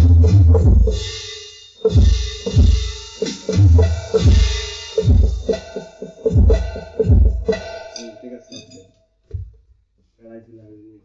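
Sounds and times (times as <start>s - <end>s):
electronic drum groove: 0.0s - 9.6s
drumsticks striking pads: 7.5s - 9.5s.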